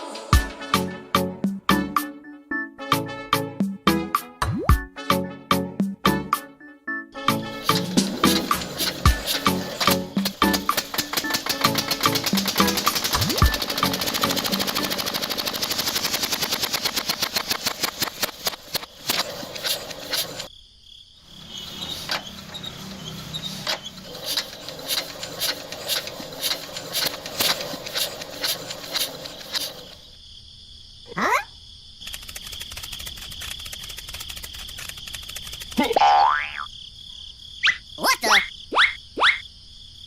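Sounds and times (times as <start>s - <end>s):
rattle of sharp clicks: 7.6s - 20.5s, 21.8s - 30.0s, 32.0s - 36.0s.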